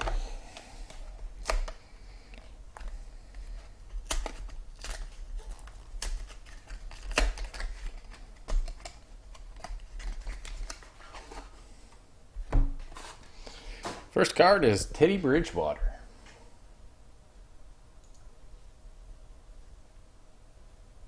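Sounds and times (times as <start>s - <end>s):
packaging snaps: 0.0s - 11.0s
packaging crinkling and tearing: 0.0s - 11.6s.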